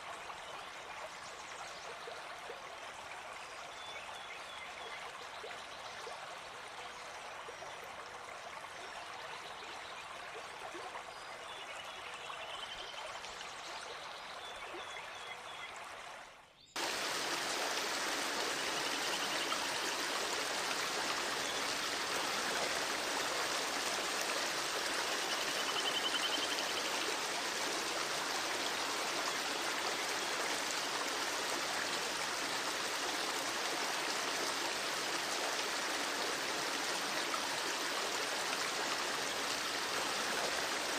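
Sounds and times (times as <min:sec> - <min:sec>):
stream water rushing: 0:16.8 - 0:40.9.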